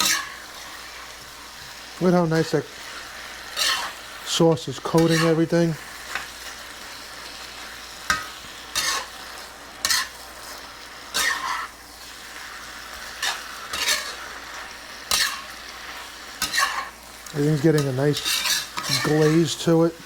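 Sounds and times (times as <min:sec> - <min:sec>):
utensil scraping and clinking on pan: 0:00.0 - 0:00.5, 0:03.5 - 0:04.0, 0:04.8 - 0:06.3, 0:08.1 - 0:09.2, 0:09.8 - 0:10.2, 0:11.1 - 0:11.7, 0:13.1 - 0:14.4, 0:15.0 - 0:19.8
food sizzling in a pan: 0:00.0 - 0:20.0.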